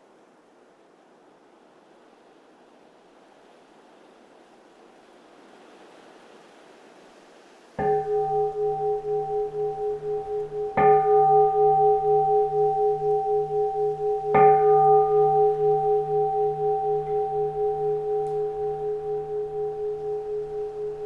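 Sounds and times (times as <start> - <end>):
bowl bell ringing: 7.8 - 21.0.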